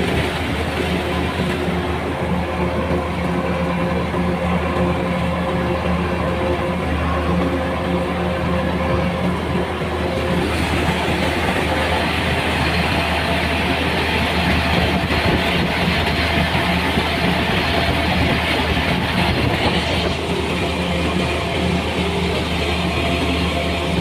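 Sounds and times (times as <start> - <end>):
engine running: 0.0 - 24.0
rushing rattling machine noise: 0.0 - 24.0.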